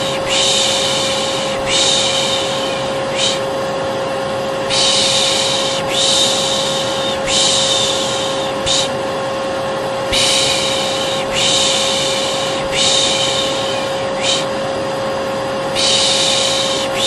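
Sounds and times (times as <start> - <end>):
person shushing: 0.0 - 3.4, 4.7 - 9.0, 10.1 - 14.5, 15.8 - 17.0
vacuum cleaner drone: 0.0 - 17.0.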